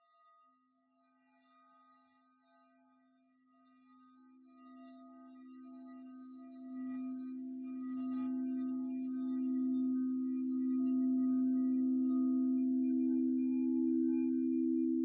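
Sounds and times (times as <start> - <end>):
singing bowl low tone: 3.8 - 15.0.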